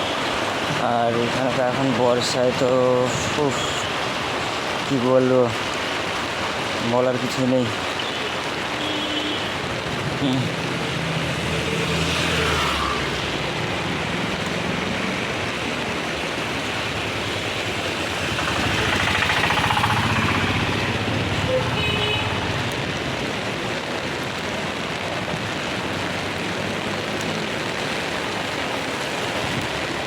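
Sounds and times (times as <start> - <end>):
heavy rain falling: 0.0 - 30.0
traffic hissing on wet road: 0.0 - 30.0
vehicle passing: 10.5 - 22.9.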